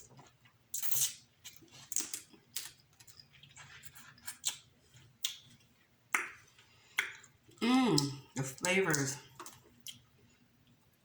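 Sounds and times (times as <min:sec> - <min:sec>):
wet chewing: 0:00.8 - 0:10.1
mouth clicks and smacks: 0:04.2 - 0:10.0.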